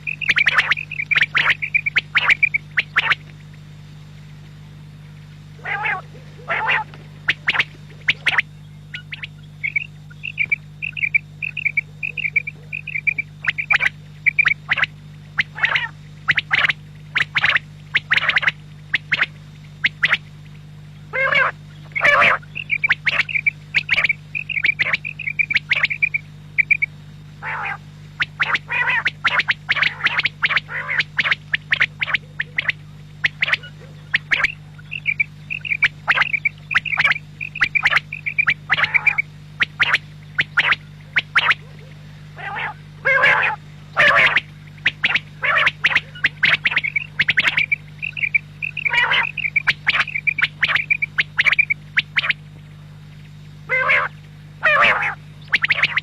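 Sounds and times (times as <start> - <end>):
quail calling: 0.0 - 3.6, 5.6 - 20.2, 21.1 - 52.4, 53.6 - 56.0
steady low hum: 0.0 - 56.0.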